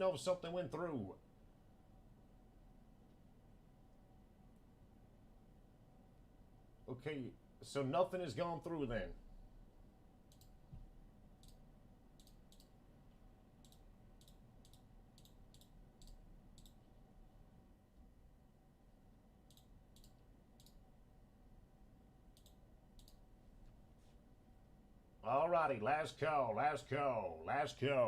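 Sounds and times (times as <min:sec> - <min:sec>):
faint sharp clicks: 0:10.3 - 0:10.6, 0:12.2 - 0:16.8, 0:19.5 - 0:20.8, 0:22.3 - 0:23.2.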